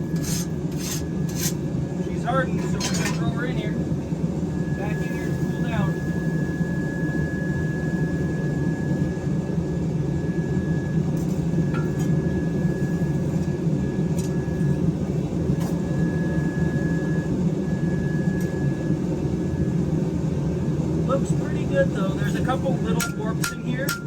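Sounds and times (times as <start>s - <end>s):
thin high whistle: 15.8s - 18.8s.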